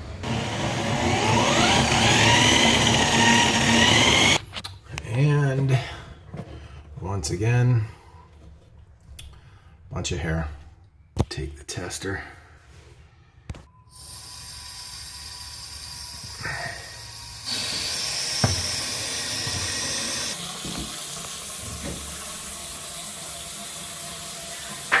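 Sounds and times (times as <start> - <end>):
faucet water running into sink: 14.0 - 25.0.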